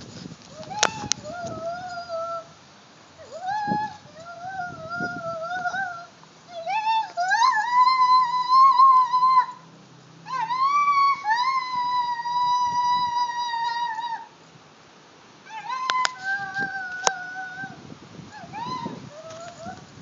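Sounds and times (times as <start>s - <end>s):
animal howling: 3.2s - 9.6s, 10.2s - 14.3s, 15.4s - 19.9s.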